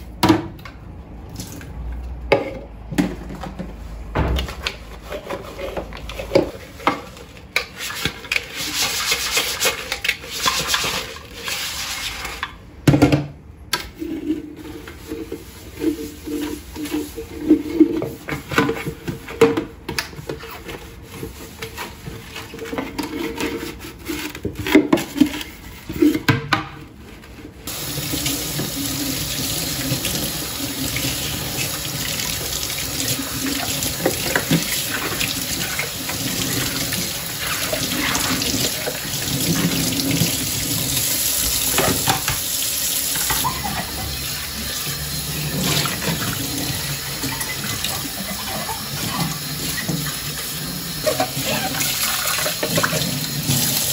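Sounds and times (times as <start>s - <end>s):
objects knocking and clattering: 2.0s - 7.1s
kitchen tap running into sink: 27.7s - 53.9s.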